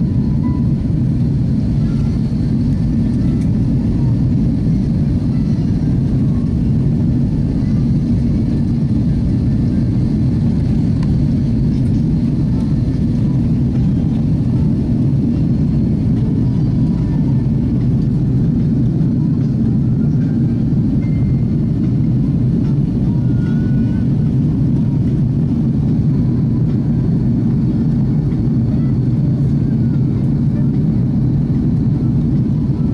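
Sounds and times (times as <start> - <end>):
faint high whine: 0.0 - 10.7
jet engines rumbling: 0.0 - 32.9.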